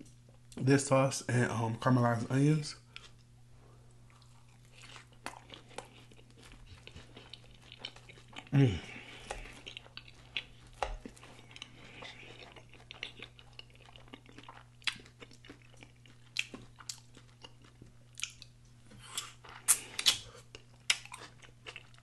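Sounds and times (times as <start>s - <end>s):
chewing and smacking: 4.0s - 22.0s.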